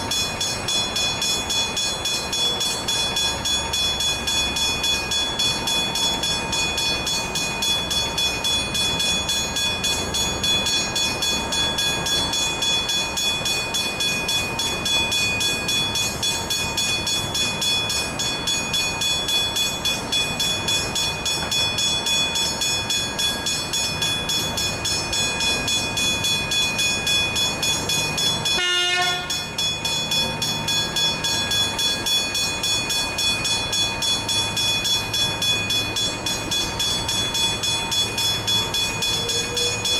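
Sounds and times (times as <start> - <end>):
level crossing warning bells: 0.0 - 39.9.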